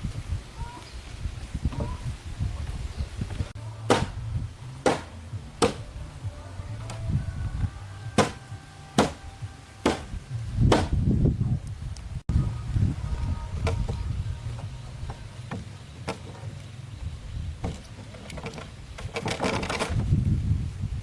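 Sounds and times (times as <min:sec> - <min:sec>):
hand tool striking wood: 0:03.9 - 0:04.2, 0:04.8 - 0:05.9, 0:08.1 - 0:11.0.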